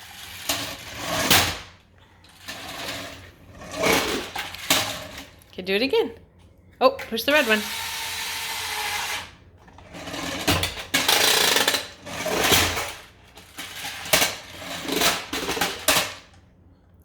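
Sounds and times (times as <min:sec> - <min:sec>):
toy mechanical sound effects: 0:07.3 - 0:09.1.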